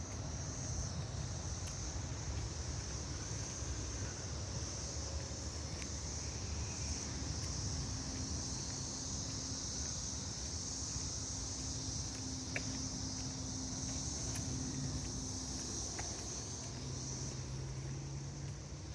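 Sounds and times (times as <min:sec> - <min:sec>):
high-pitched insect chorus: 0:00.0 - 0:18.9.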